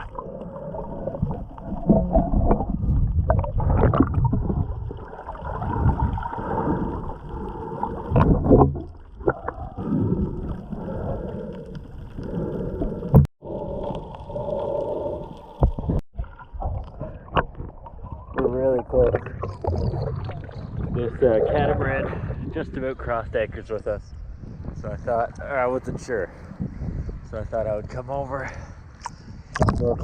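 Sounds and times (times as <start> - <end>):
water sloshing and splashing: 0.0 - 13.3.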